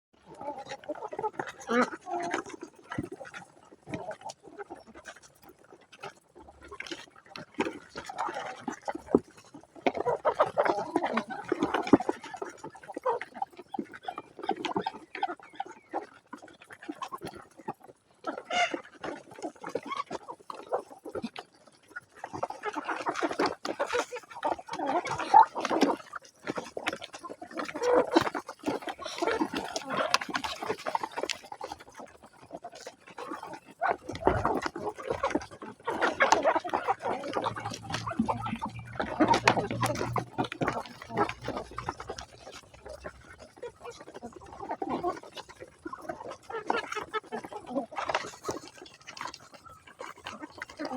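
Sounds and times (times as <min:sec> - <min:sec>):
chickens clucking: 0:00.2 - 0:06.8, 0:07.5 - 0:21.2, 0:21.8 - 0:50.9
animal calls: 0:35.9 - 0:44.4.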